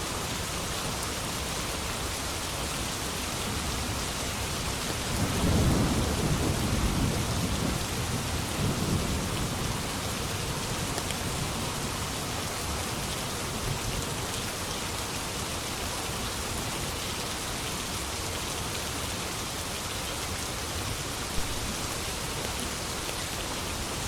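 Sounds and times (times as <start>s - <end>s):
heavy rain: 0.0s - 24.0s
thunder rumbling: 5.1s - 9.8s.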